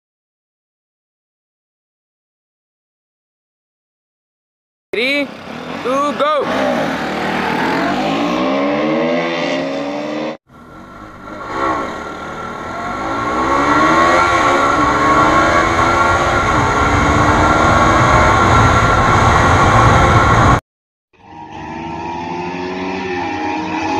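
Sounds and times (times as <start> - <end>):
motorcycle engines accelerating: 5.0 - 20.6.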